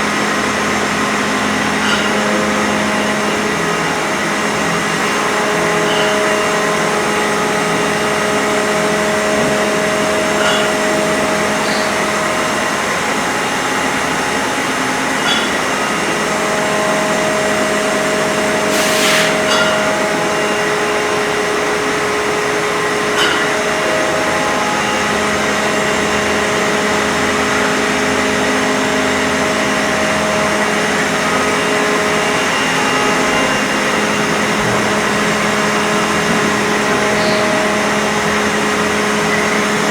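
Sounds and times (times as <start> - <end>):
machine motor whirring: 18.7 - 19.7
short hiss: 18.7 - 19.7.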